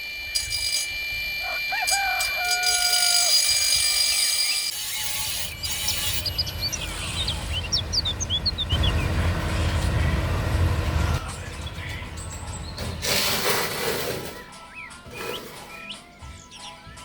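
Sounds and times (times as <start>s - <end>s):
small birds chirping: 5.6s - 10.4s, 14.4s - 17.0s
steady low rumble: 6.4s - 13.0s.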